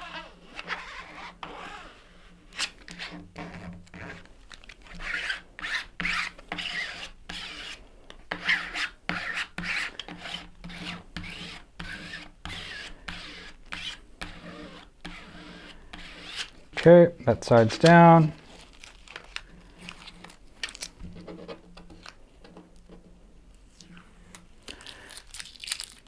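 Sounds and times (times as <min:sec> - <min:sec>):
plastic card scraping over decal: 0:00.0 - 0:16.9.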